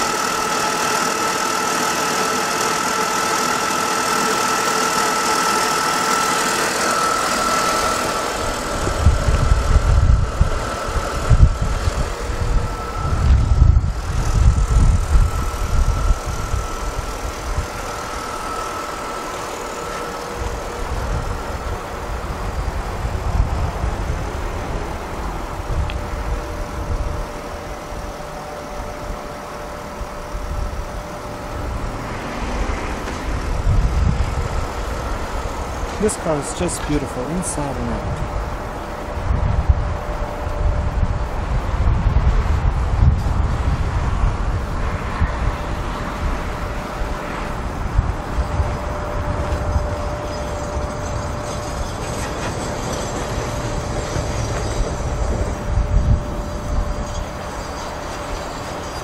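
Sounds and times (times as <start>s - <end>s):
car engine idling: 0.0s - 41.9s
high whine: 0.0s - 59.0s
wind buffeting microphone: 7.6s - 37.0s, 37.6s - 59.0s.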